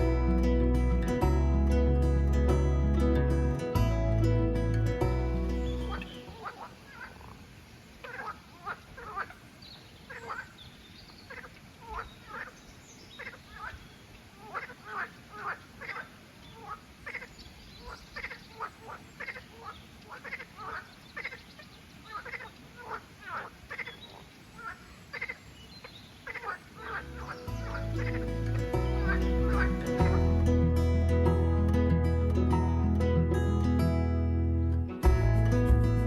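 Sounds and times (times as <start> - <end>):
frogs croaking: 5.7 - 30.2.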